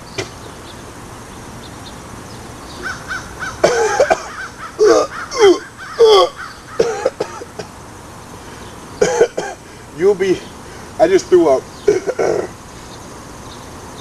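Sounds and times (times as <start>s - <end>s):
man retching and gagging: 3.6s - 7.6s, 11.9s - 12.5s.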